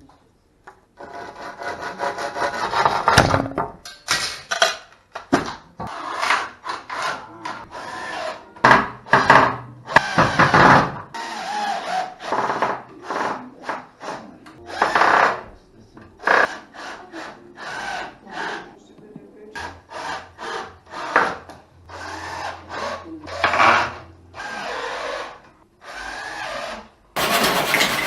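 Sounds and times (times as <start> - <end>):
rough scraping strokes: 27.2 - 28.0.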